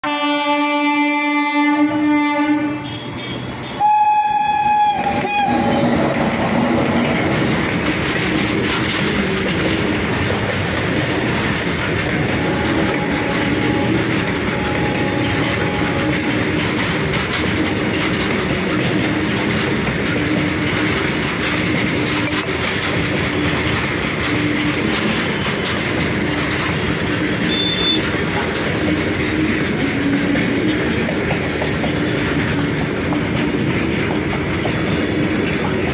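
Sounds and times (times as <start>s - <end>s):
train horn: 0.0s - 6.1s, 12.2s - 16.7s, 27.4s - 28.2s
freight wagons rumbling on track: 1.9s - 35.9s.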